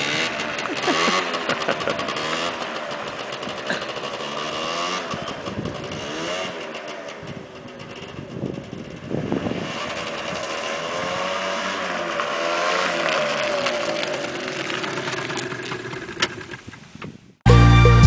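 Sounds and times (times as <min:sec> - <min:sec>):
motorcycle engine revving: 0:00.0 - 0:17.1
loud music: 0:17.5 - 0:18.0.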